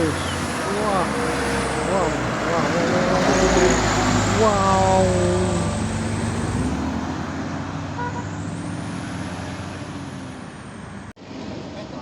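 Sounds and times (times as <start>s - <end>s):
truck engine running: 0.0s - 8.9s.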